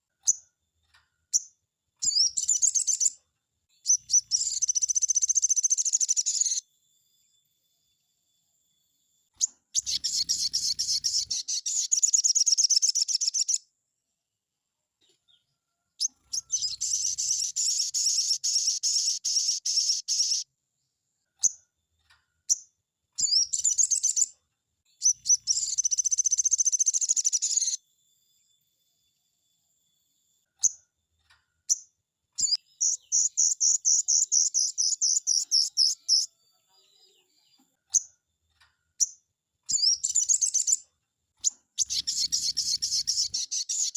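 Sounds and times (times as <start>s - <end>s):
bird singing rapid trills: 1.3s - 3.2s, 3.8s - 6.7s, 9.4s - 13.6s, 16.0s - 20.4s, 23.2s - 24.4s, 25.0s - 27.8s, 31.7s - 36.4s, 39.0s - 40.8s, 41.4s - 43.9s
short bird chirps: 1.3s - 3.2s, 3.8s - 6.7s, 9.4s - 13.6s, 15.0s - 20.5s, 22.5s - 27.8s, 31.7s - 38.2s, 39.0s - 43.9s.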